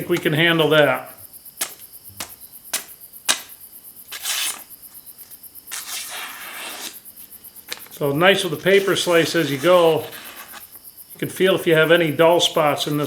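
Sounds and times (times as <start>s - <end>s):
knife slicing through paper: 4.1s - 4.7s, 5.7s - 7.0s, 8.4s - 10.7s.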